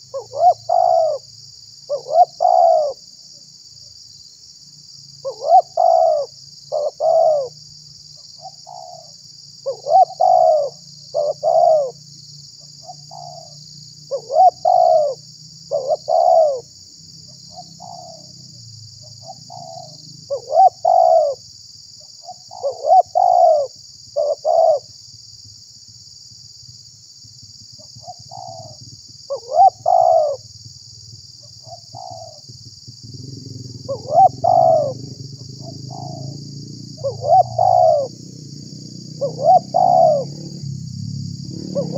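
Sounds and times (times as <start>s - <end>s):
dove cooing: 0.0s - 1.3s, 1.9s - 3.0s, 5.2s - 7.6s, 8.4s - 12.0s, 12.8s - 16.7s, 17.3s - 18.4s, 19.1s - 21.4s, 22.2s - 24.9s, 27.9s - 30.5s, 31.4s - 40.6s, 41.5s - 41.9s.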